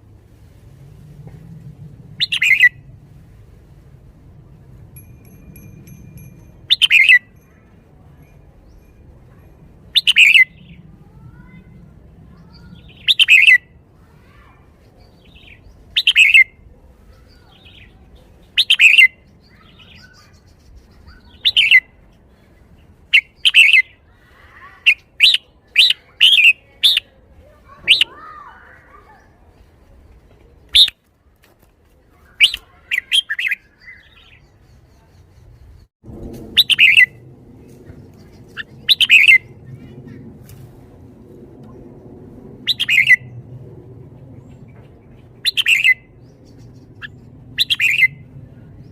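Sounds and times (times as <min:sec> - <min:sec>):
low steady hum: 0:00.0 - 0:14.0, 0:35.0 - 0:48.9
bird singing sweeping phrases: 0:00.8 - 0:31.0, 0:32.2 - 0:48.9.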